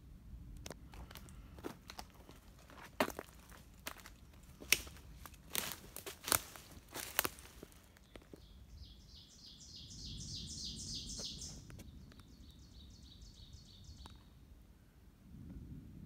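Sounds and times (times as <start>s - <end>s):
footsteps crunching on forest floor: 0.7s - 8.5s.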